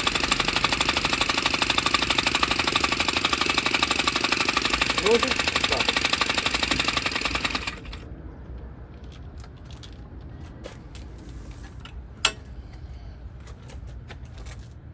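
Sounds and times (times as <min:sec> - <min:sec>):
air engine mechanical clatter: 0:00.0 - 0:14.9.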